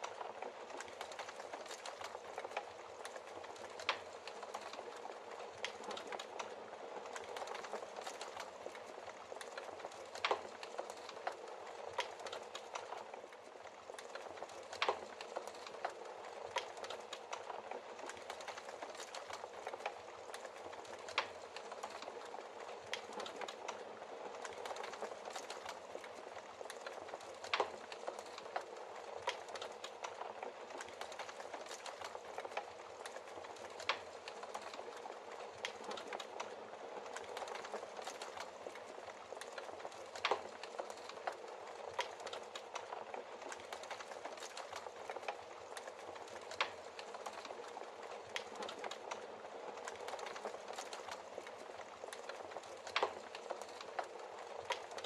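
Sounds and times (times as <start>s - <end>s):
wood fire crackling: 0.0s - 55.0s
fire pops: 24.4s - 51.2s, 51.8s - 55.0s.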